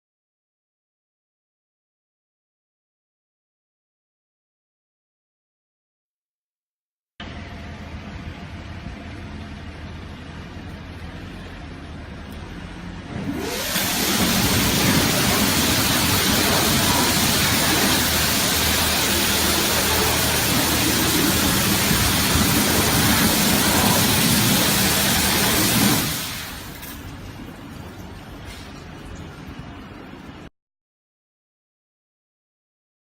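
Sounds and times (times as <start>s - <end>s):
low machine hum: 7.2s - 30.5s
high-pressure water spray hiss: 13.4s - 27.3s.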